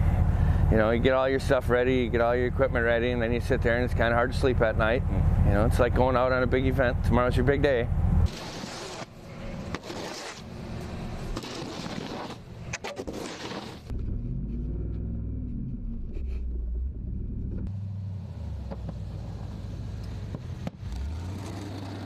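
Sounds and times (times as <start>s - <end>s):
vehicle engine running: 0.0s - 8.3s, 13.9s - 22.0s.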